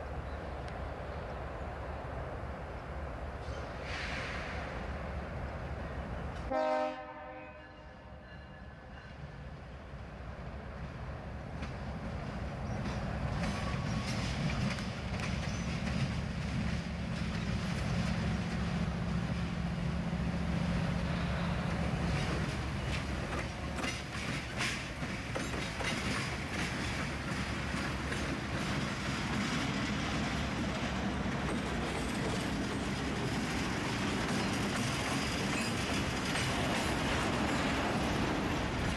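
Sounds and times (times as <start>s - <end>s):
diesel train rumbling: 0.0s - 38.9s
train horn blast: 6.5s - 8.5s
wheels clicking over rail joints: 11.5s - 19.6s, 21.6s - 38.9s.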